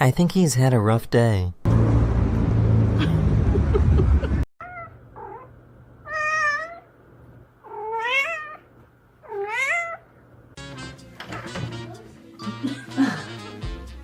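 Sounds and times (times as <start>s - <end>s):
cat meowing: 4.6s - 6.9s, 7.6s - 10.1s.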